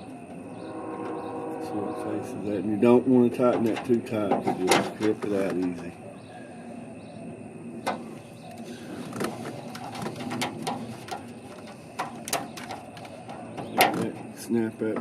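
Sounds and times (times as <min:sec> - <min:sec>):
sharp clicks and light knocks: 0:03.5 - 0:05.8, 0:07.8 - 0:15.0.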